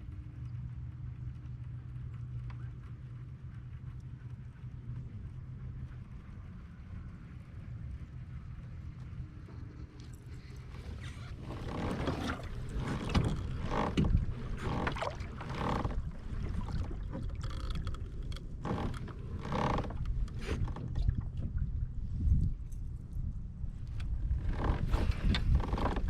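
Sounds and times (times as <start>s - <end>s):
steady low rumble: 0.0s - 26.0s
water sloshing around a kayak: 9.5s - 22.6s, 23.8s - 26.0s.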